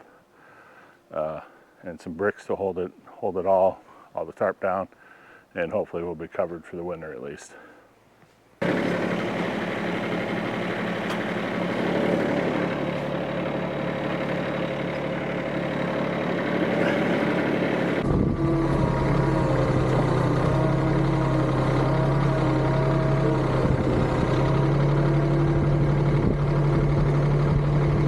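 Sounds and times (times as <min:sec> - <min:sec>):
tractor engine running: 0:08.6 - 0:28.0.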